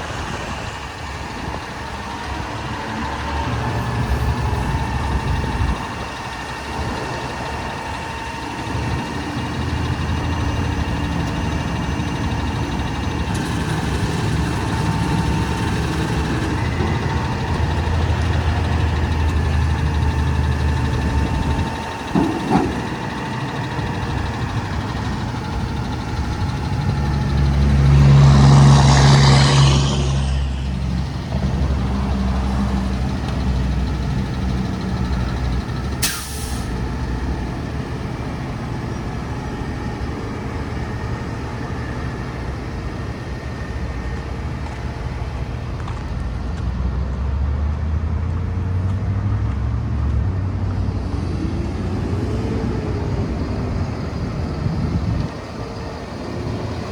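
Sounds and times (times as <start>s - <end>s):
diesel truck engine running: 0.0s - 56.9s
air brake hiss: 36.0s - 36.8s.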